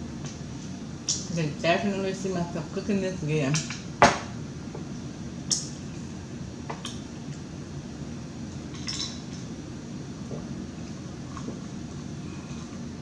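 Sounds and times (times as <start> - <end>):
steady low hum: 0.0 - 13.0
cutlery clinking against dish: 8.8 - 9.2.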